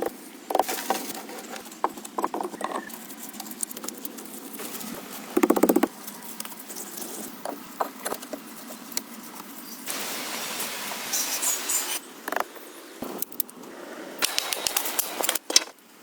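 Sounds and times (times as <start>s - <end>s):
taps knocks and scrapes: 0.0s - 4.3s
steady hiss: 8.6s - 15.4s.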